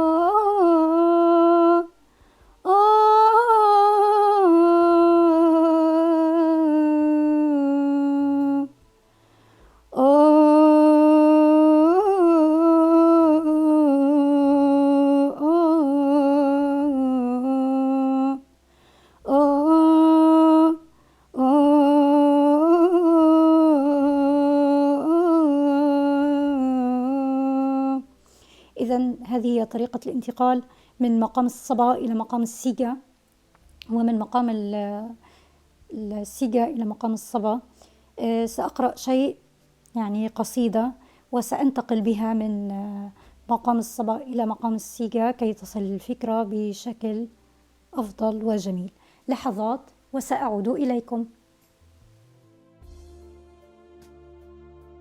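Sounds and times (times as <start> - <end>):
woman humming a slow melody: 9.9 - 18.4, 19.3 - 28.1.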